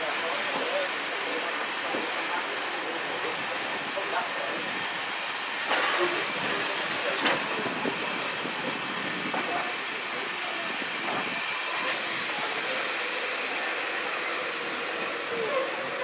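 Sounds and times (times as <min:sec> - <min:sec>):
train carriages rumbling: 0:00.0 - 0:16.0
faint wheel squeal: 0:00.5 - 0:02.5, 0:10.4 - 0:16.0.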